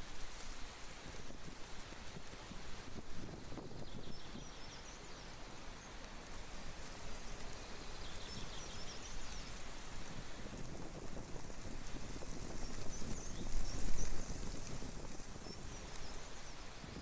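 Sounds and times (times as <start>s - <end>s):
wind on microphone: 0.0s - 17.0s
small bird chirping: 3.8s - 6.0s, 7.6s - 9.6s, 12.6s - 14.6s, 15.4s - 17.0s.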